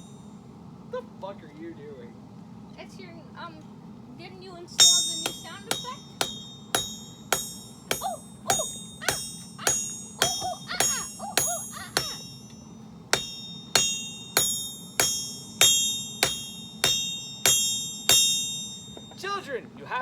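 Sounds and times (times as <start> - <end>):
hammer striking steel on anvil: 4.8 - 19.4.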